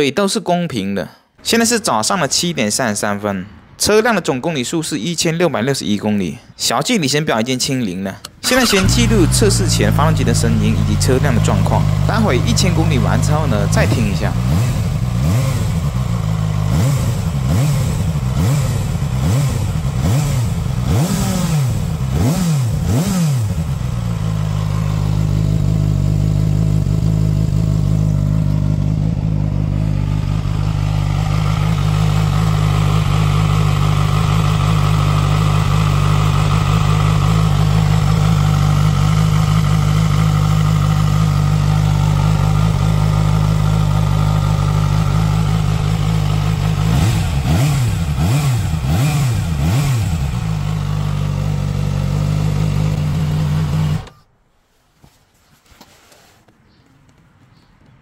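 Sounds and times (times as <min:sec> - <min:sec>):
motorcycle engine revving: 0:08.2 - 0:54.2.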